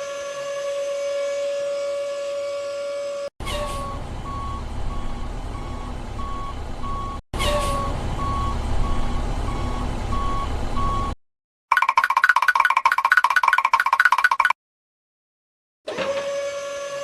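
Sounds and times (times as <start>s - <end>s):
truck engine rumble: 3.4s - 11.2s
reversing alarm beeping: 3.8s - 11.2s.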